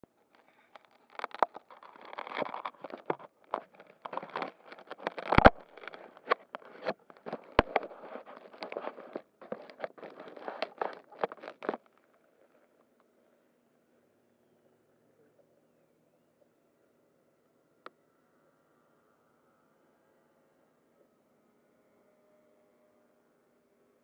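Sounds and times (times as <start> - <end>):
microphone handling clicks and rustles: 0.0 - 12.7.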